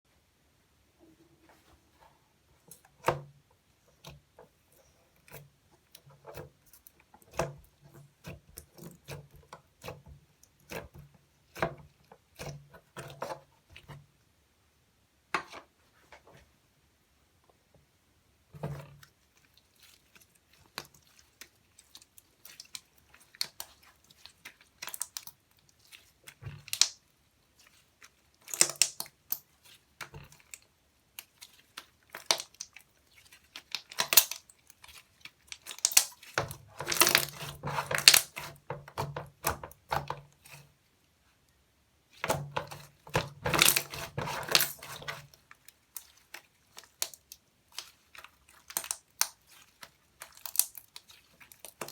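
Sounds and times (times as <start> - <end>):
slime squishing and crackling: 18.8 - 40.7, 42.1 - 51.9.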